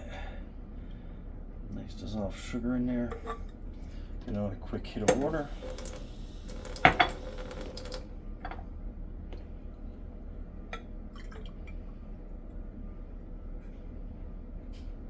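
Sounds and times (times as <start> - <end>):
liquid pouring into feeder: 5.4 - 8.1
water drips: 5.6 - 8.0.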